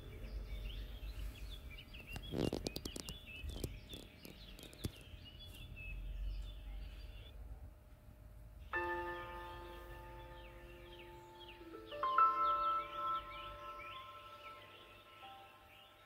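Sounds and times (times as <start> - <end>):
bird chirping: 0.0 - 7.4, 8.6 - 16.0
low steady hum: 0.0 - 16.0.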